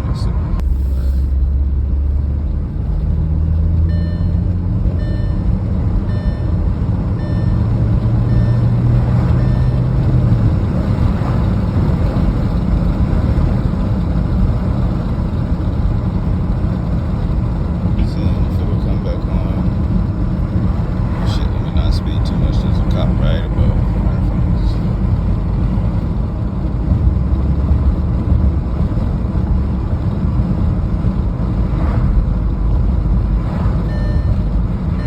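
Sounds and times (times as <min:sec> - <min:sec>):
car engine and road rumble: 0:00.0 - 0:35.0
short high beeps: 0:03.9 - 0:06.6, 0:07.2 - 0:08.8, 0:09.4 - 0:09.9, 0:33.8 - 0:35.0.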